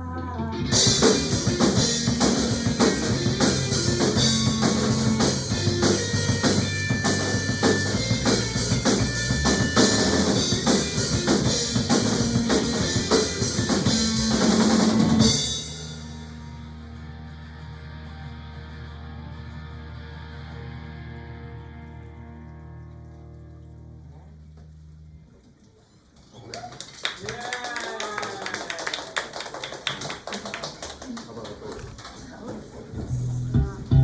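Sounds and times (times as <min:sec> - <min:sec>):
sustained guitar tone: 0:00.0 - 0:25.1, 0:33.1 - 0:34.0
bass notes: 0:00.0 - 0:25.3, 0:33.0 - 0:34.0
drum kit: 0:00.5 - 0:18.2, 0:33.0 - 0:34.0.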